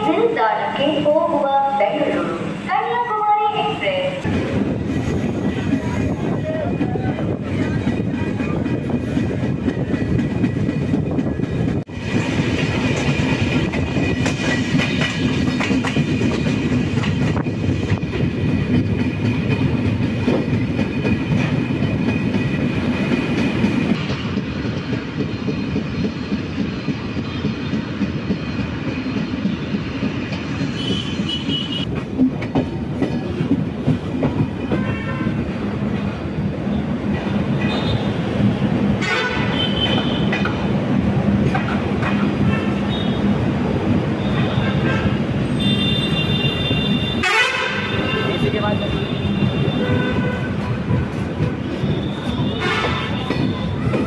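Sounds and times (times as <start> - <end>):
train wheels clattering on track: 4.2 - 54.0.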